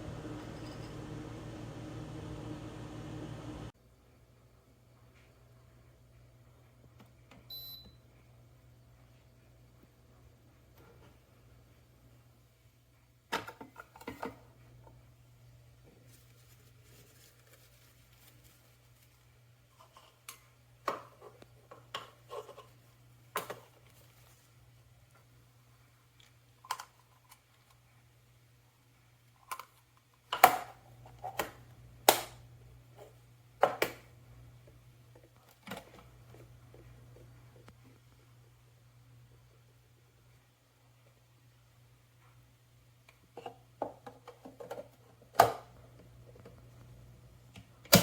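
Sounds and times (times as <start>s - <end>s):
faint low hum: 0.0s - 13.2s.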